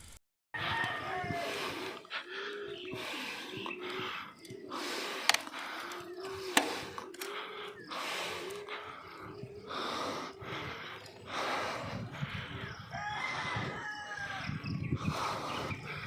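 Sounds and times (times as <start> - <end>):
rooster crowing: 0.6 - 1.8, 12.6 - 14.6
heavy rhythmic breathing: 1.3 - 16.0.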